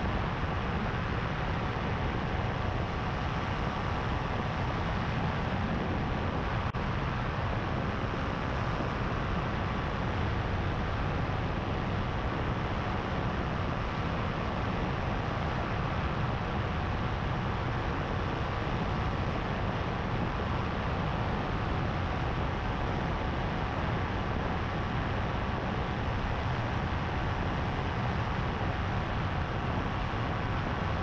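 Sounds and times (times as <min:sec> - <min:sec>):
paramotor engine and propeller: 0:00.0 - 0:31.0
wind noise: 0:00.0 - 0:31.0.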